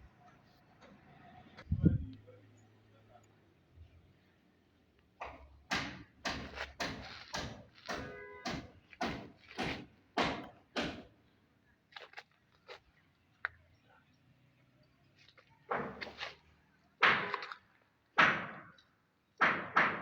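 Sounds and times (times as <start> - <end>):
rhythmic hammering: 5.2 - 11.1.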